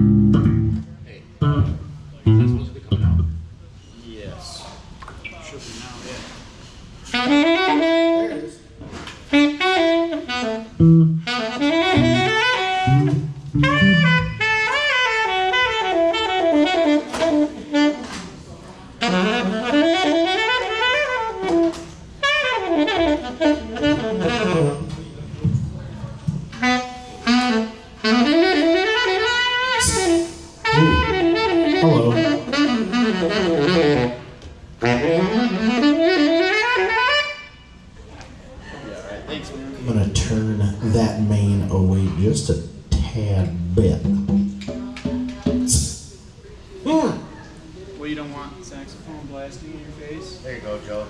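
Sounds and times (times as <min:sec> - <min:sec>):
saxophone playing jazz phrases: 0:00.0 - 0:03.5, 0:07.0 - 0:18.3, 0:18.9 - 0:25.1, 0:26.5 - 0:37.9, 0:43.0 - 0:46.1
low bass notes: 0:00.0 - 0:03.6, 0:10.7 - 0:14.7, 0:29.8 - 0:32.7, 0:39.9 - 0:46.0.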